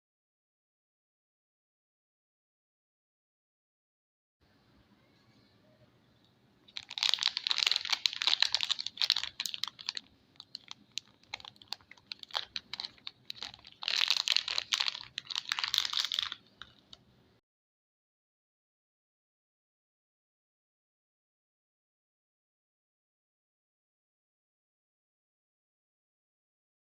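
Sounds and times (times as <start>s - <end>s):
packaging crinkling: 6.7s - 17.0s.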